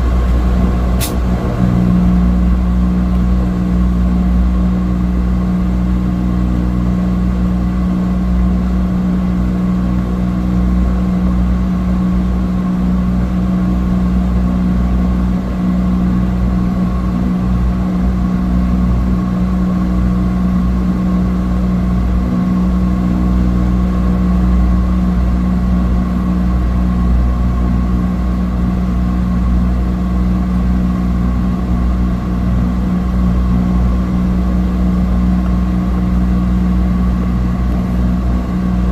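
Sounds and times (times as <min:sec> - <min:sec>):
turboprop engine droning in cabin: 0:00.0 - 0:38.9.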